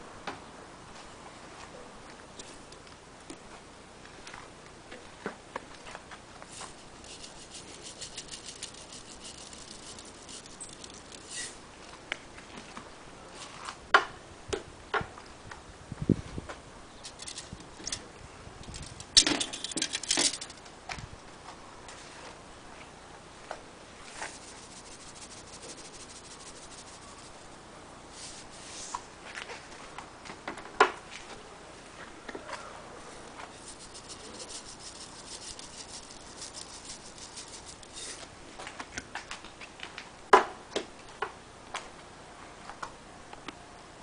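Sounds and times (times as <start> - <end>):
charcoal fire crackling: 6.4 - 11.9, 24.0 - 29.0, 33.5 - 38.3.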